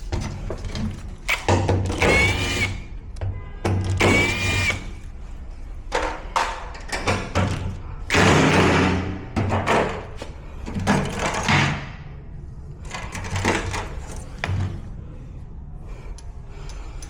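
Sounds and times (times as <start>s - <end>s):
cordless drill whining: 1.3s - 2.9s, 4.0s - 5.1s.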